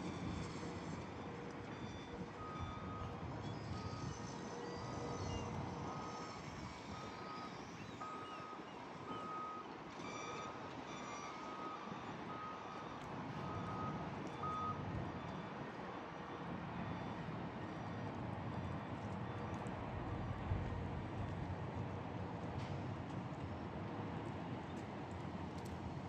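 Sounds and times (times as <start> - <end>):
reversing alarm beeping: 0.0 - 15.7.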